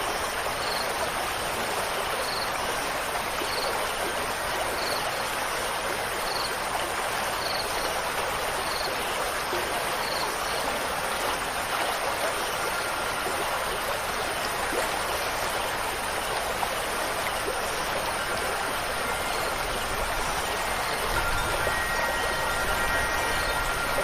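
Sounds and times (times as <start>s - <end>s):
running water rushing: 0.0s - 24.0s
wind chime ringing: 17.5s - 24.0s.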